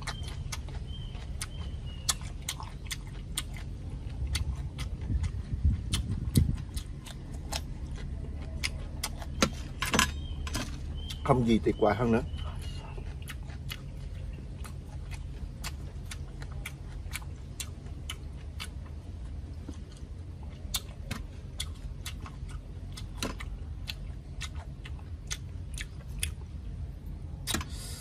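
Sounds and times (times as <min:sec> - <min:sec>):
low steady hum: 0:00.0 - 0:28.0
person chewing crispy food: 0:00.0 - 0:28.0.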